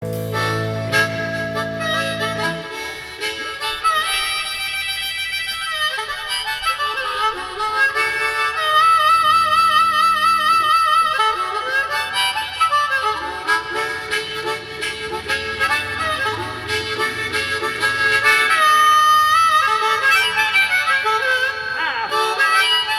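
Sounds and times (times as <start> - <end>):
lead instrument sustained notes: 0.0 - 4.6, 13.2 - 21.6
live band playing: 0.0 - 22.9.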